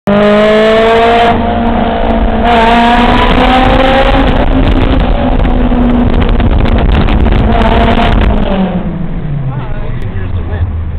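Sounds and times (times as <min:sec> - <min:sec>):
car exhaust accelerating hard: 0:00.1 - 0:10.9.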